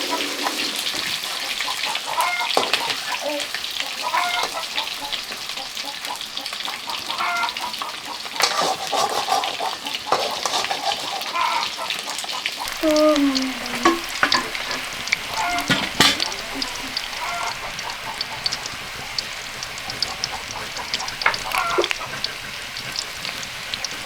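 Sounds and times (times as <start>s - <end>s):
food sizzling in hot oil: 0.0s - 24.0s
stirring clicks and scrapes: 8.4s - 11.4s, 12.6s - 24.0s
falling voice-like call: 12.7s - 14.2s.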